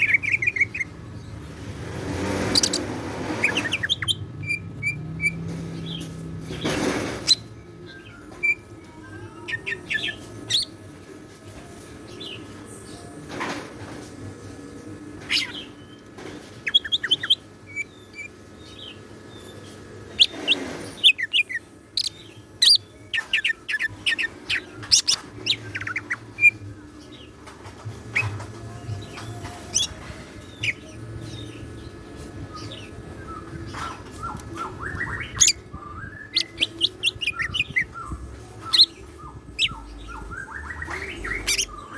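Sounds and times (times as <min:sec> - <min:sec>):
rustling noises: 0:23.2 - 0:41.8
bird singing sharp chirps: 0:32.5 - 0:41.9.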